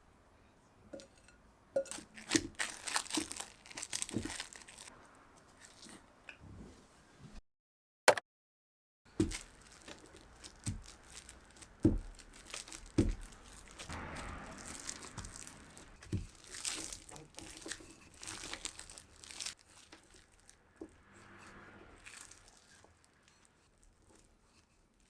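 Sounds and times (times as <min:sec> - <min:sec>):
wrapping crinkling and tearing: 0:01.9 - 0:05.0, 0:05.6 - 0:06.0, 0:09.1 - 0:20.6, 0:22.0 - 0:25.0.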